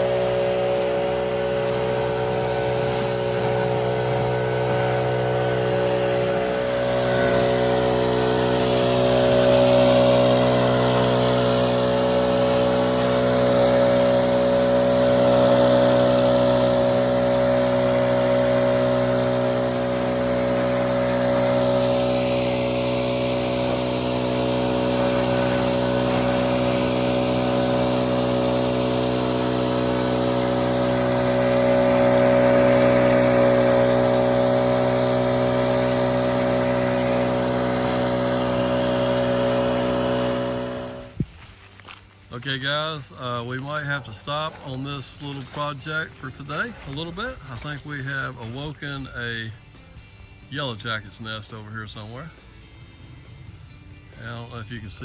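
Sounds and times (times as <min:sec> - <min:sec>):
leaf blower running: 0:00.0 - 0:50.0.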